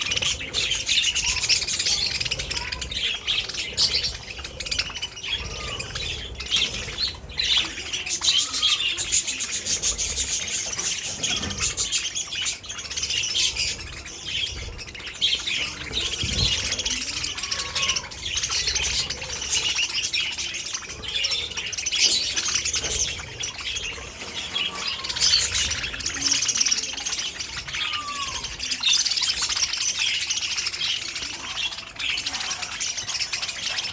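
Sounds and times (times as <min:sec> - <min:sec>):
budgerigars chirping and chattering: 0:00.0 - 0:33.9.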